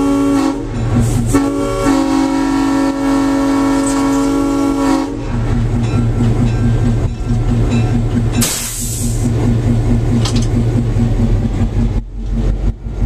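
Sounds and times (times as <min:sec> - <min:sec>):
locomotive air horn: 0:00.0 - 0:05.4
diesel engine running: 0:00.0 - 0:13.0.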